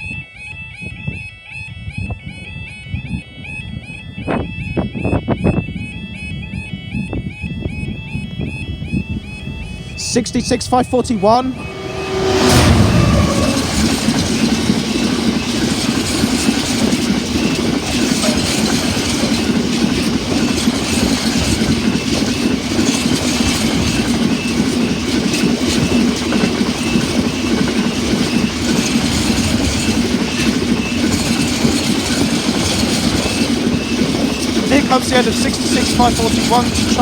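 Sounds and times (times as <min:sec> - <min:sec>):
train wheels rumbling: 0:07.7 - 0:37.0
wheels clacking over rail joints: 0:09.1 - 0:37.0.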